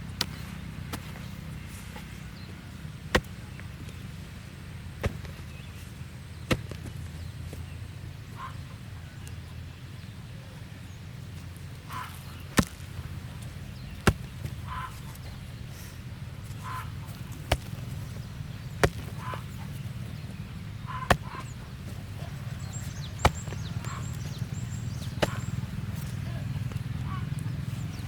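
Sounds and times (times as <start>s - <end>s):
steady low hum: 0.0s - 9.0s, 9.7s - 28.0s
sharp chopping strikes: 3.1s - 3.5s, 5.0s - 5.5s, 6.5s - 6.8s, 12.6s - 13.1s, 13.8s - 15.4s, 17.1s - 26.8s
faint chirping calls: 7.2s - 28.0s.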